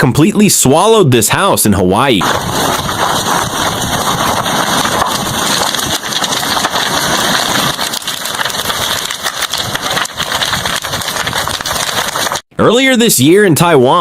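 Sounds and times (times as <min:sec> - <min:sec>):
lava burning through house: 0:02.1 - 0:12.5.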